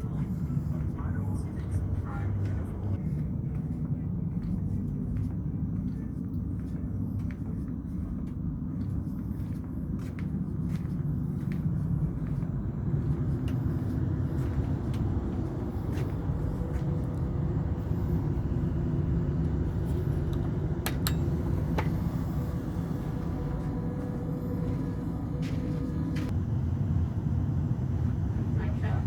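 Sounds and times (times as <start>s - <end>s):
faint steady hum: 0.0s - 29.0s
vehicle rumble: 0.0s - 29.0s.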